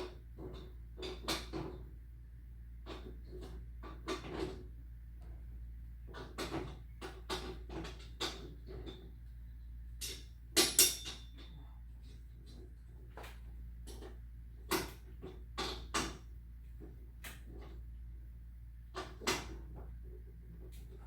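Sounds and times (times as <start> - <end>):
metallic clicks and knocks of tools: 10.0 - 12.6.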